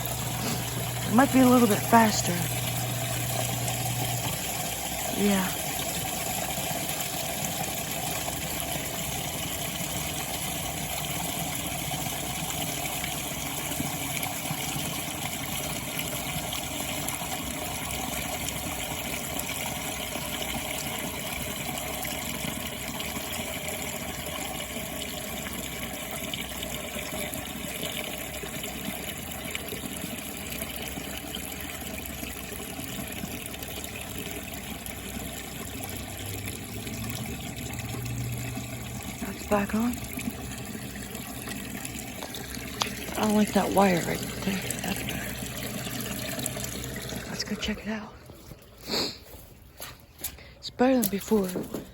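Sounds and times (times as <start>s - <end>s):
water rushing from pump: 0.0s - 51.9s.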